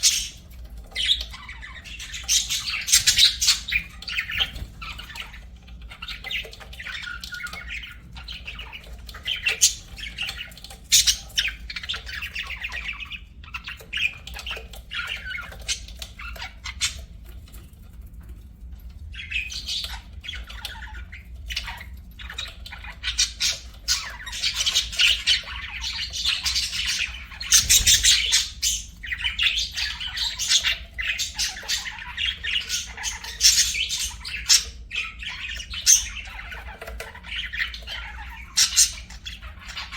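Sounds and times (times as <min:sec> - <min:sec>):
budgerigars chattering: 0:00.0 - 0:17.1, 0:19.2 - 0:39.9.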